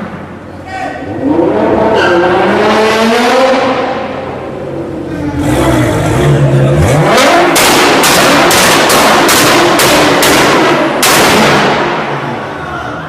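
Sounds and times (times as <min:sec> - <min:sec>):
car engine revving: 0:01.0 - 0:12.6
exhaust popping: 0:05.3 - 0:12.4.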